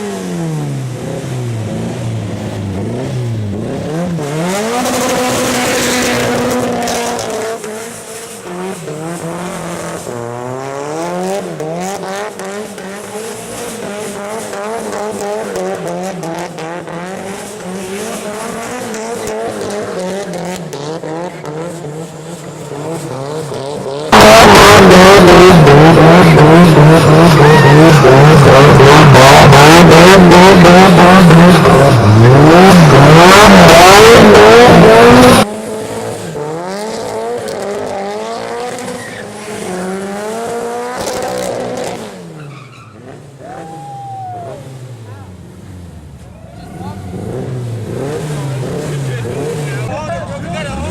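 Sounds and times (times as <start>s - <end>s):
car engine revving unevenly: 0.0s - 50.9s
tyres squealing: 26.3s - 29.6s.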